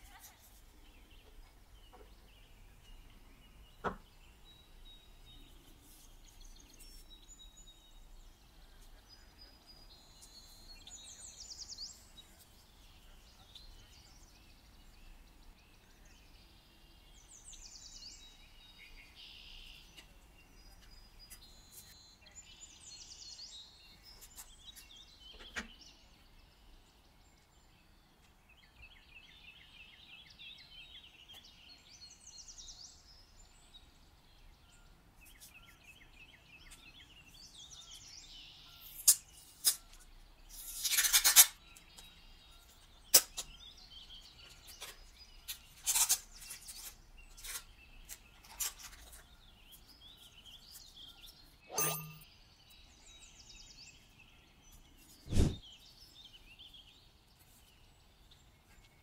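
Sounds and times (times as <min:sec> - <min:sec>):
faint bird chirps and trills: 0:00.0 - 0:59.0.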